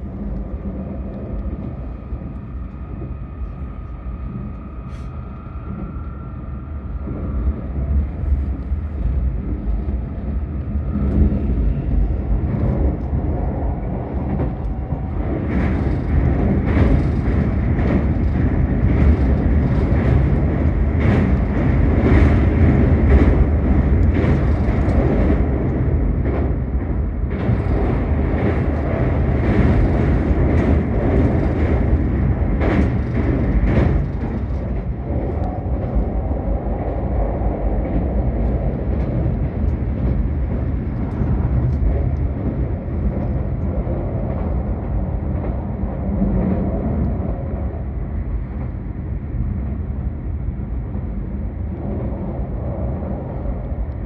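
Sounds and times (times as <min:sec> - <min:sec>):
train running rumble: 0:00.0 - 0:54.0
sharp clacks on steel bridge: 0:10.6 - 0:50.0.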